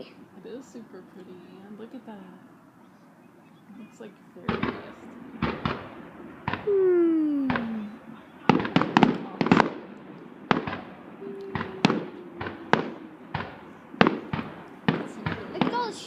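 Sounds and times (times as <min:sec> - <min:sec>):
fireworks bangs: 0:03.7 - 0:16.0
long falling tone: 0:06.6 - 0:08.2, 0:11.2 - 0:13.8.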